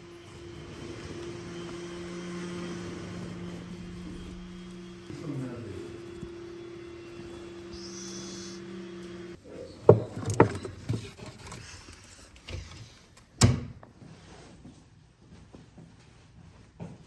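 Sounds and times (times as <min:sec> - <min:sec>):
steady hum: 0:00.0 - 0:09.4.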